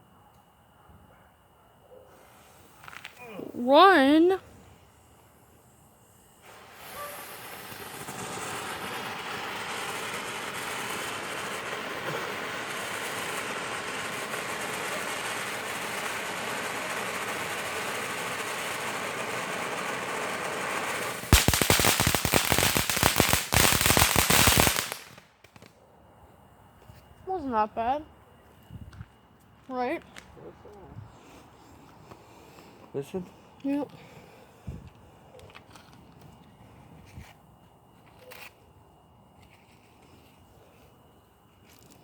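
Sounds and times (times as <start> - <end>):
firework hissing: 2.2 - 25.6
loud crackling bangs: 6.5 - 25.6.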